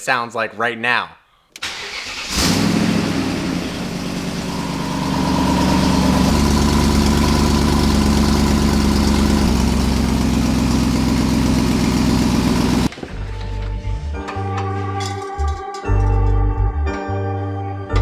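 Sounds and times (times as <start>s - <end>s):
unsilenced engine idling: 2.5s - 12.9s.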